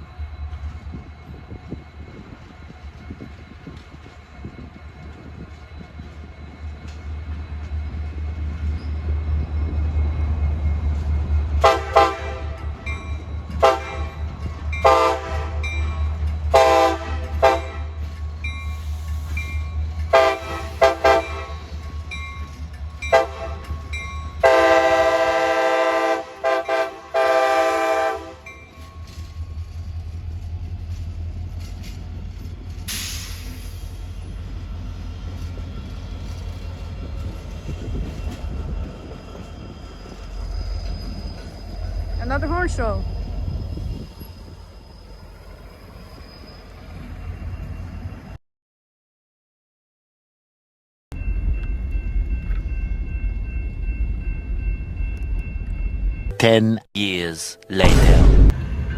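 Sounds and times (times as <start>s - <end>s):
train air horn blasts: 11.6s - 12.6s, 13.6s - 14.1s, 14.8s - 15.6s, 16.5s - 17.9s, 20.1s - 21.6s, 23.1s - 23.6s, 24.4s - 28.4s.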